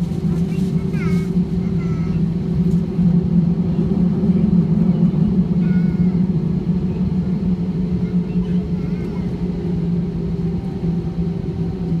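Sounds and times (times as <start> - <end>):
jet engines droning: 0.0 - 12.0.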